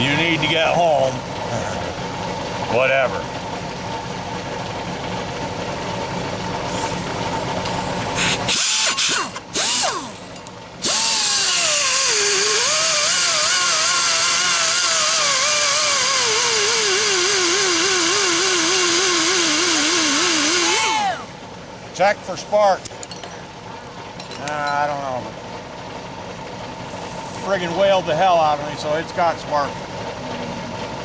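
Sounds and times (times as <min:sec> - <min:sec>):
engine-like hum: 0:00.0 - 0:31.0
electric power tool whining: 0:06.7 - 0:21.4
short rattling bursts: 0:08.0 - 0:21.2.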